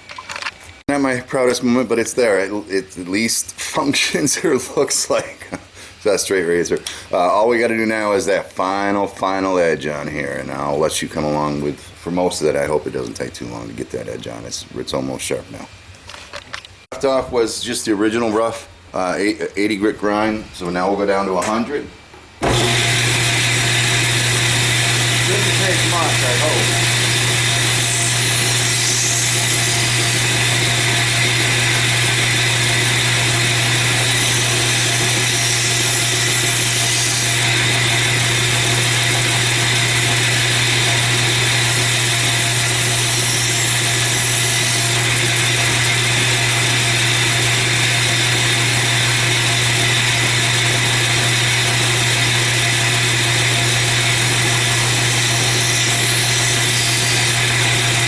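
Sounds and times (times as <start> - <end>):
blade grinding hiss: 22.4 - 31.8
belt grinder running: 22.4 - 58.0.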